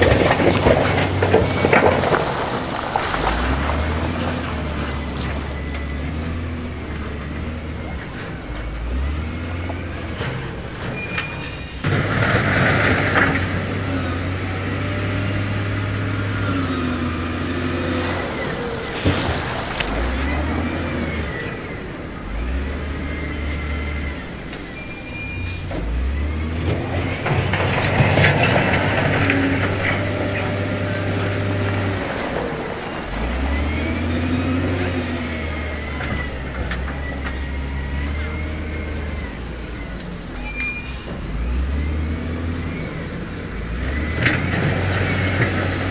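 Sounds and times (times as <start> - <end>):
heavy diesel engine droning: 0.0 - 45.9
metallic clanks and rattles: 25.4 - 33.4
thin squeal: 35.2 - 41.4.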